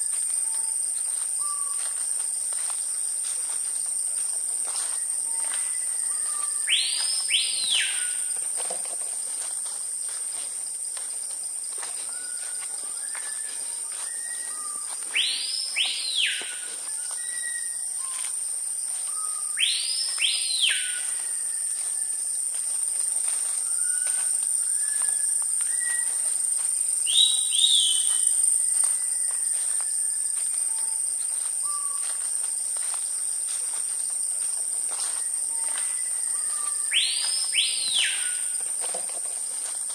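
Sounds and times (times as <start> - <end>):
high-pitched insect drone: 0.0 - 39.9
soft whistled bird notes: 12.0 - 18.3, 19.0 - 22.2, 23.6 - 26.2, 35.2 - 38.6
bird call sweeping up and down: 12.2 - 18.3, 19.1 - 21.7, 35.6 - 38.6.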